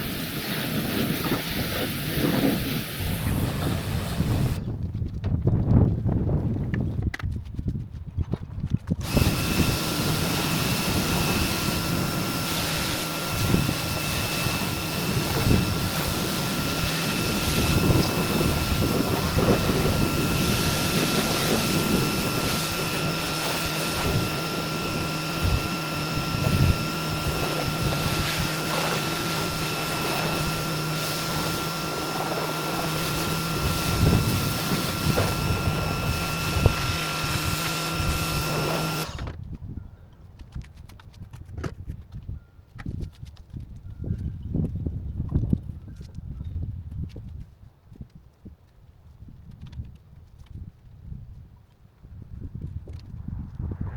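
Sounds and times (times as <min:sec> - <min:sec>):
machine motor whining: 0:00.3 - 0:04.6, 0:09.0 - 0:39.4.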